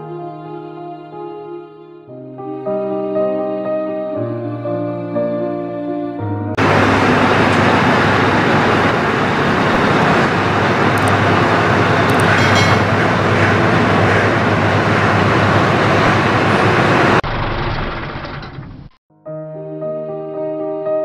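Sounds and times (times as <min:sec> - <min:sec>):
truck engine hum: 0:06.6 - 0:19.0.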